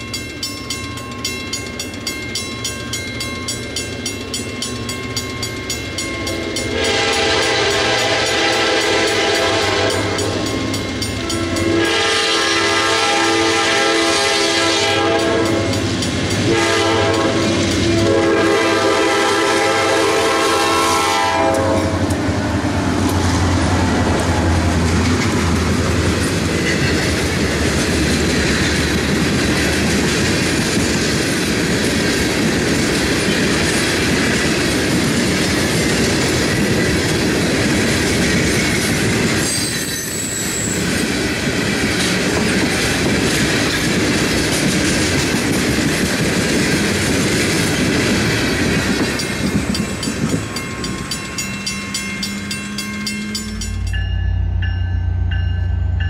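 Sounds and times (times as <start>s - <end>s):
train wheels clattering on rails: 0.0s - 54.7s
train engine rumbling: 0.0s - 56.0s
locomotive horn blasts: 6.4s - 10.4s, 11.2s - 15.8s, 16.4s - 22.1s.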